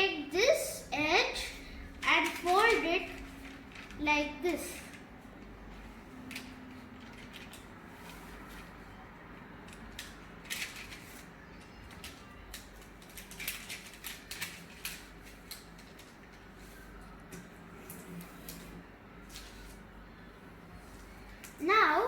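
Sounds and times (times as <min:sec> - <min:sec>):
paper being folded and creased: 0:02.0 - 0:08.9, 0:09.7 - 0:19.9.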